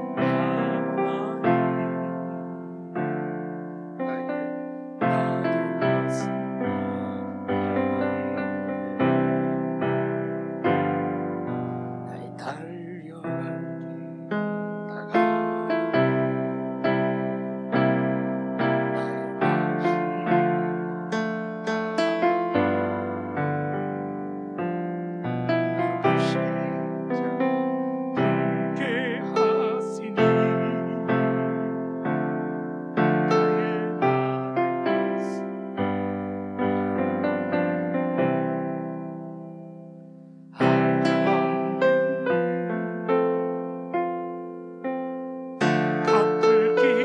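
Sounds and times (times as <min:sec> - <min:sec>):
electric piano hymn chords: 0:00.0 - 0:47.0.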